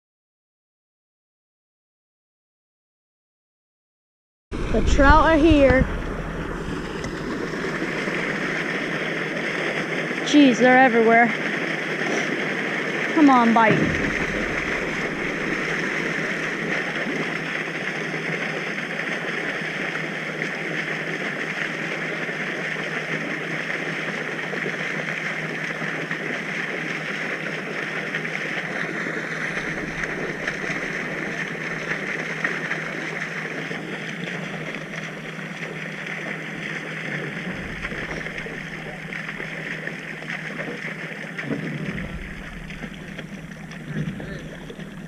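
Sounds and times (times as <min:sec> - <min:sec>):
steady rushing noise: 0:04.5 - 0:09.9, 0:13.2 - 0:18.1, 0:29.2 - 0:32.4, 0:37.2 - 0:40.6, 0:41.4 - 0:45.0.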